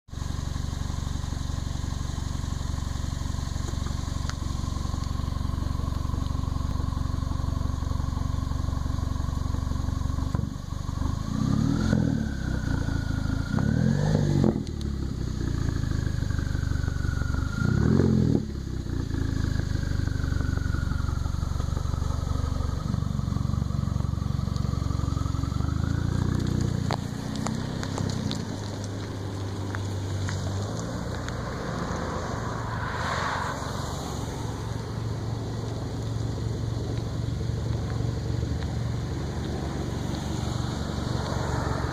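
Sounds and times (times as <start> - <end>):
car engine idling and revving: 0.0 - 41.9
turbo whistle: 12.0 - 14.5, 16.6 - 18.4.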